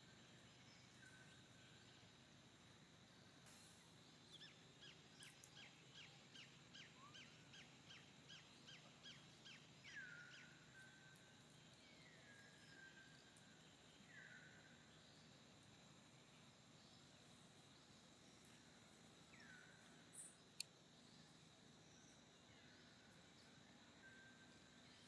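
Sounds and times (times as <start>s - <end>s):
bird singing whistled notes: 3.7s - 14.6s.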